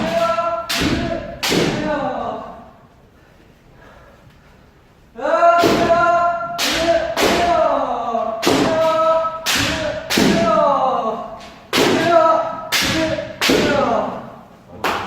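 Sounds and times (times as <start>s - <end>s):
bamboo sword strikes: 0.0s - 1.9s, 5.6s - 6.0s, 6.6s - 7.6s, 8.4s - 10.6s, 11.7s - 13.9s
people shouting: 0.0s - 2.4s, 5.2s - 14.1s.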